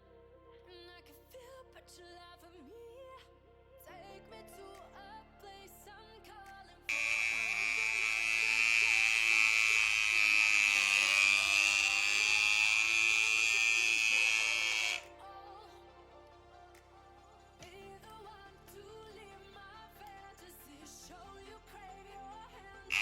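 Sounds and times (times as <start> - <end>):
electric hair clipper buzzing: 6.9 - 15.0.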